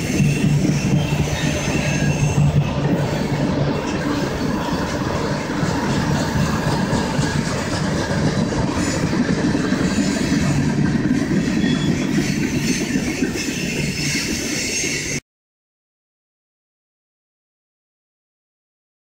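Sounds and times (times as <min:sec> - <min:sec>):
freight train wheels rumbling on track: 0:00.0 - 0:15.2.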